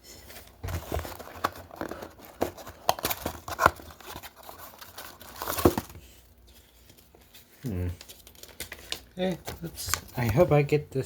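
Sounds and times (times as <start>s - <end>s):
wrapper crinkling and tearing: 0.8s - 5.9s, 8.0s - 10.4s.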